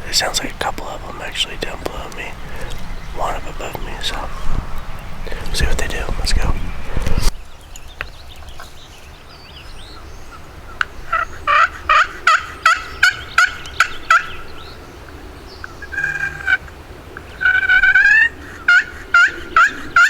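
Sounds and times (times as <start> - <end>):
turkey yelping: 10.7 - 14.6, 15.6 - 20.0.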